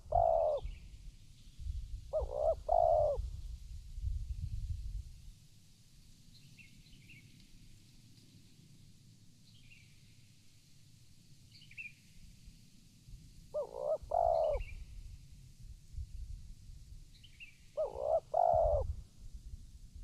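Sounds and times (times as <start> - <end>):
dove cooing: 0.0 - 0.8, 2.1 - 3.3, 13.5 - 14.8, 17.8 - 18.9.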